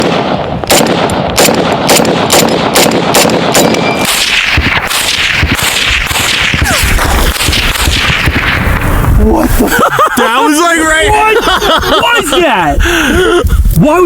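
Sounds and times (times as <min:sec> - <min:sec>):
supersonic bullets cracking past: 0:00.0 - 0:09.8
steady rushing noise: 0:04.0 - 0:14.0.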